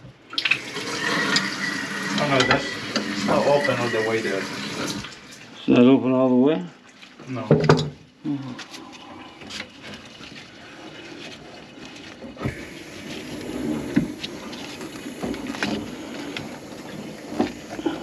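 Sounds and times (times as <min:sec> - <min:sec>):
faucet water running into sink: 0:00.3 - 0:05.8, 0:12.4 - 0:18.0.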